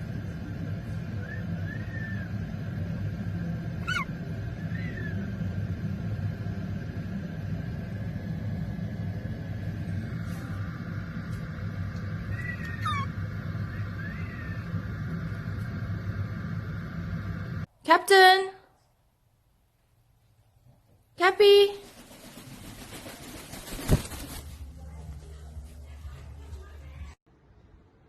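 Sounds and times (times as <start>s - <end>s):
steady low hum: 0.0s - 17.8s
parrot whistled chirps: 1.2s - 2.4s, 3.8s - 5.3s, 12.3s - 14.6s.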